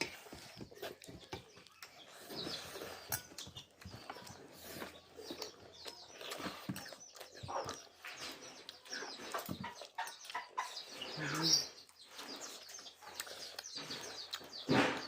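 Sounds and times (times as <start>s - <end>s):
chewing and lip smacks: 3.2s - 10.9s, 11.8s - 14.7s.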